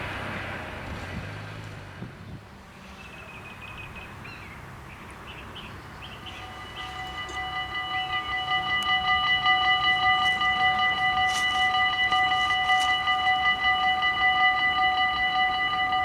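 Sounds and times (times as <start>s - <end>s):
birds chirping: 2.6s - 13.9s
level crossing bells ringing: 6.1s - 16.0s.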